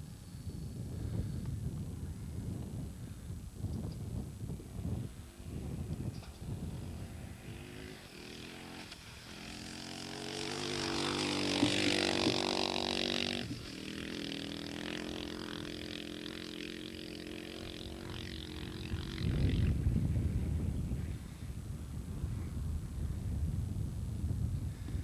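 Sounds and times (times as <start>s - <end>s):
dirt bike engine running: 4.5s - 21.5s.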